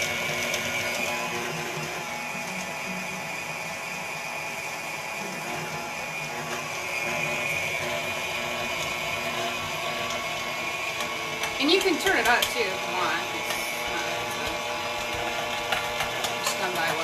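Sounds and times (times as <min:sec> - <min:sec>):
stand mixer motor hum and whine: 0:00.0 - 0:17.0
cheese being shredded: 0:05.6 - 0:17.0.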